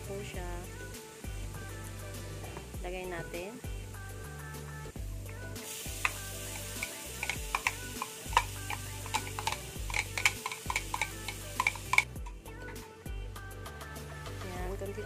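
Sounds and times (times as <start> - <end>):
beans sizzling in hot oil: 0.0 - 12.8
background music: 0.0 - 15.0
metal spoon clicking on glass bowl: 6.0 - 12.3.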